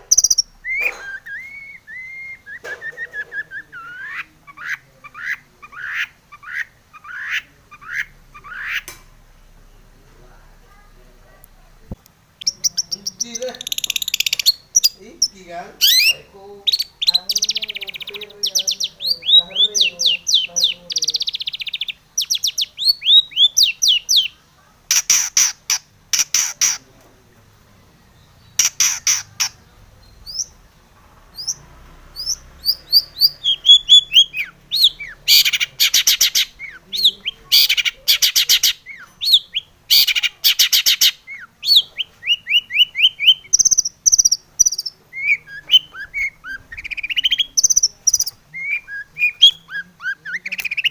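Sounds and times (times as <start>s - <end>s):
harsh rasping bird calls: 0.0s - 8.9s, 12.4s - 26.9s, 28.1s - 50.9s
bird singing whistles and chirps: 0.1s - 4.1s, 15.8s - 24.3s, 32.2s - 50.9s.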